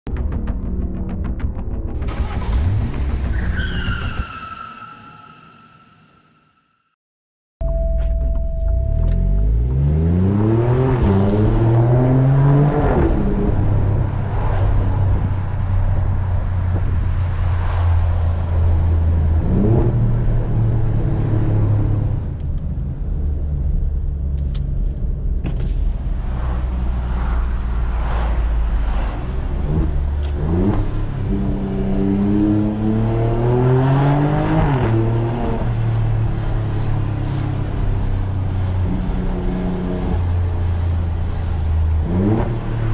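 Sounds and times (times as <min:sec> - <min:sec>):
car engine accelerating hard: 0:08.9 - 0:24.2, 0:25.8 - 0:42.9.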